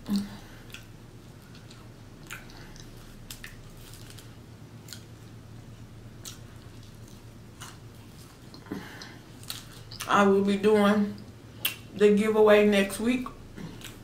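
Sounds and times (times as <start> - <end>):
person chewing fries: 0.0 - 10.1, 13.5 - 14.0
low steady hum: 0.0 - 14.0
wet mouth clicks and smacks: 1.5 - 3.6, 11.6 - 11.9.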